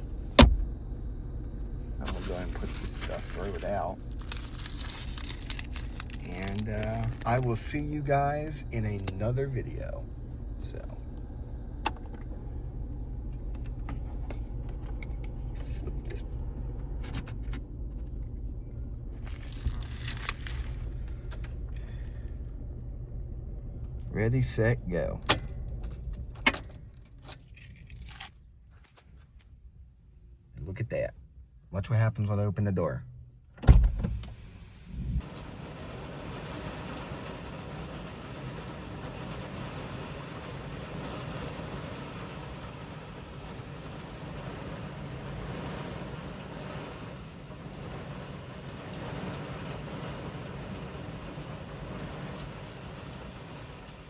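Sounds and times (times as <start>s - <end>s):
storm wind and rain: 0.0s - 26.6s, 33.9s - 54.0s
steady low rumble: 0.0s - 28.7s, 29.5s - 54.0s
thump: 0.4s - 0.7s, 33.6s - 34.3s
packaging crinkling and tearing: 2.0s - 7.5s, 19.2s - 21.3s.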